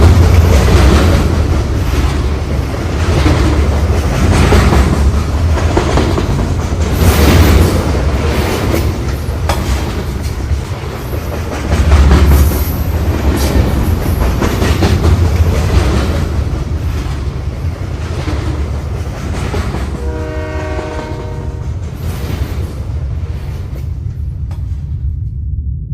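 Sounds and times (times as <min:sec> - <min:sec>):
train rumble and wheel clatter: 0:00.0 - 0:25.9
multi-tone train horn: 0:19.9 - 0:21.8.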